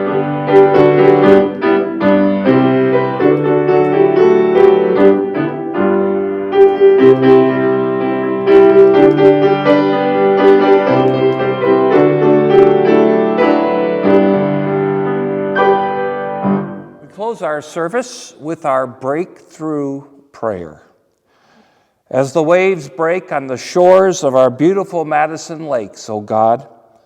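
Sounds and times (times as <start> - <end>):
slow piano chords: 0.0 - 17.5.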